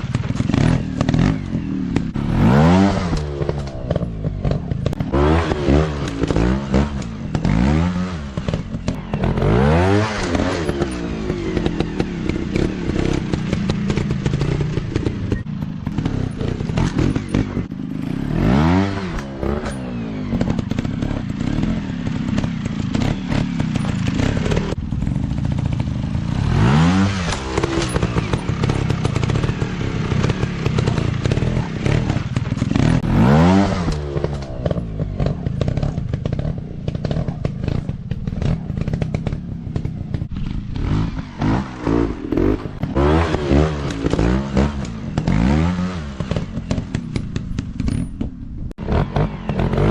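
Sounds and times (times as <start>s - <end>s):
dirt bike engines revving: 0.0s - 49.9s.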